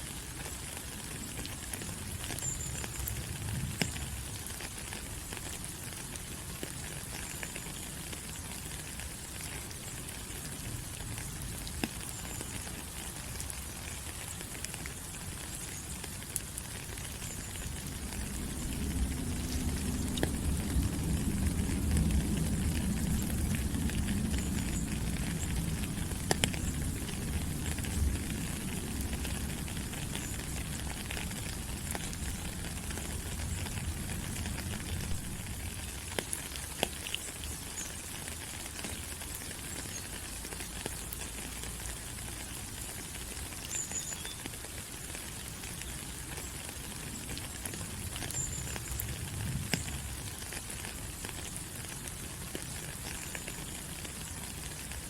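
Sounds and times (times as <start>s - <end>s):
rain on leaves: 0.0s - 55.0s
low rumble: 17.8s - 29.7s, 34.6s - 35.8s.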